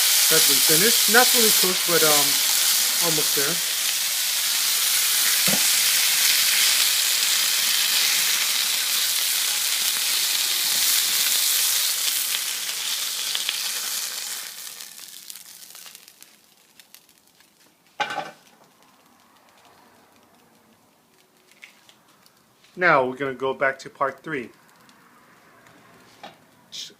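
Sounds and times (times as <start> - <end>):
food sizzling in hot oil: 0.0 - 19.7.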